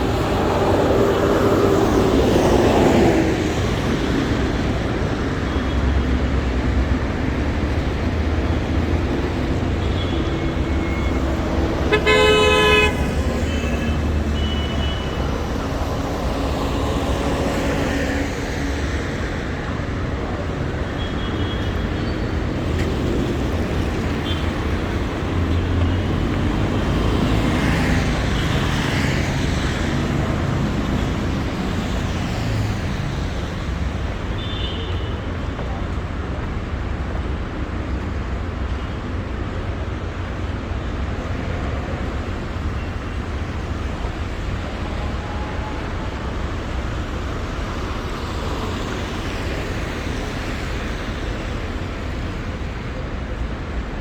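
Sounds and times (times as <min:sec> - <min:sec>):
passing vehicles rumbling: 0:00.0 - 0:34.4, 0:35.1 - 0:54.0
car horn blast: 0:11.9 - 0:13.8.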